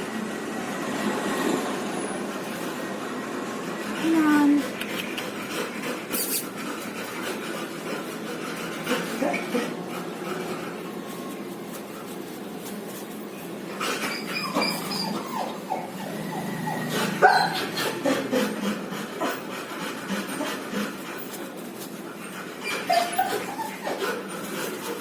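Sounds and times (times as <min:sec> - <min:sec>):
baby pigeon squeaking: 0:13.9 - 0:17.7.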